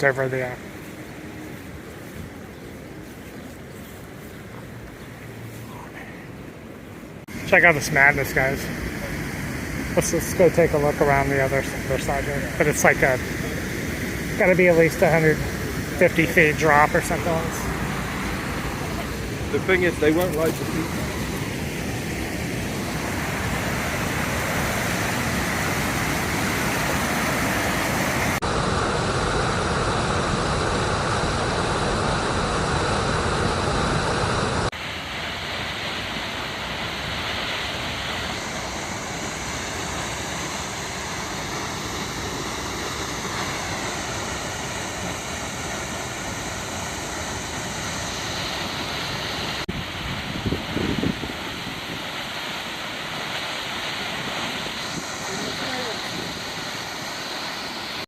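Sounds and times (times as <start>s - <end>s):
waterfall rushing: 7.3s - 28.8s, 30.8s - 58.0s.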